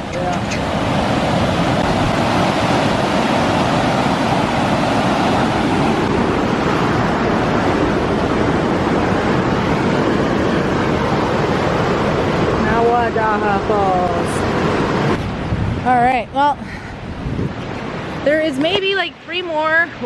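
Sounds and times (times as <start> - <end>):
water rushing over rock ledges: 0.0 - 15.5.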